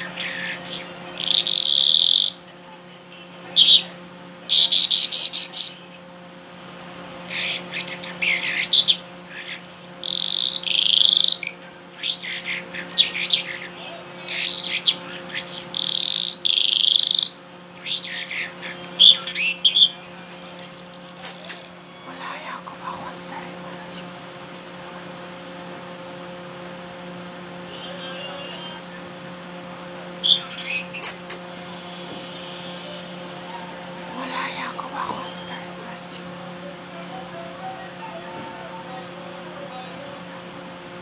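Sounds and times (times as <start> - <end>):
faint high chirping: 0.0 - 2.5, 7.3 - 22.5
songbird singing: 0.0 - 6.0, 7.3 - 21.9, 30.2 - 31.4
faint steady low hum: 0.0 - 41.0.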